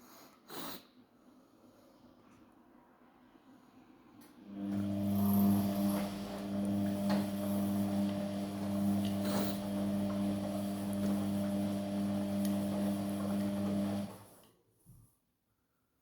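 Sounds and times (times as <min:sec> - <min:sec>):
washing machine hum: 0:04.4 - 0:14.5.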